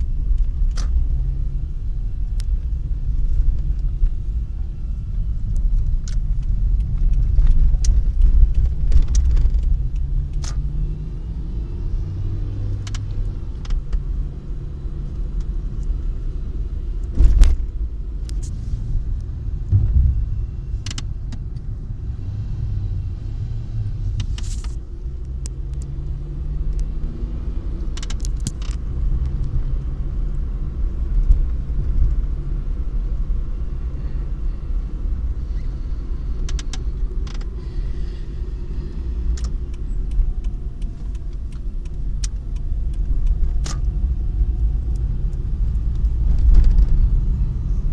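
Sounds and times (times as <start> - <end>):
car engine rumbling: 0.0 - 47.9
sharp clicks and knocks: 19.7 - 21.7, 27.9 - 29.5.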